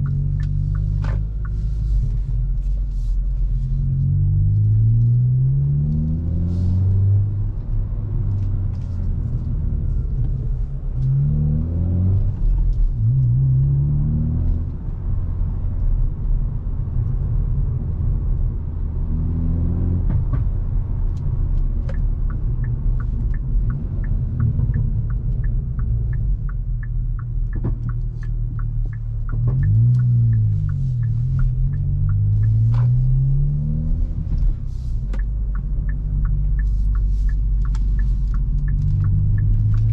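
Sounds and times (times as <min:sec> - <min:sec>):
car engine revving: 0:03.6 - 0:14.8, 0:27.2 - 0:39.9
steady ticking: 0:21.9 - 0:33.5, 0:35.0 - 0:39.9.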